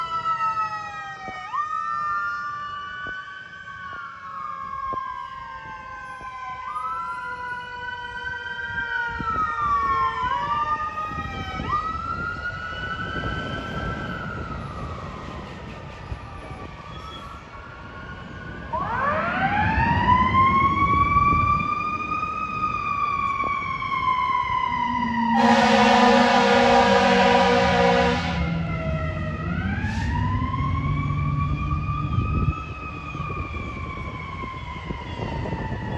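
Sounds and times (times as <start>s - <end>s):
sirens wailing: 0.0s - 35.9s
fire truck horn blast: 25.3s - 28.8s.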